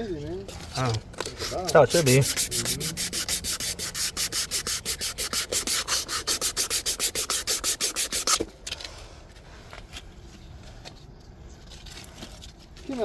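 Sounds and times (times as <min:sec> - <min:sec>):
sandpaper scratching on plastic pipe: 0:01.2 - 0:08.5.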